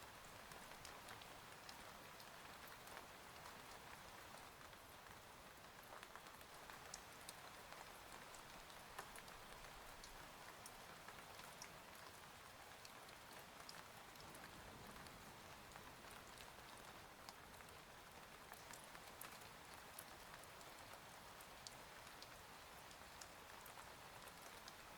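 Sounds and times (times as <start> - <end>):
faint steady rain: 0.0 - 24.9.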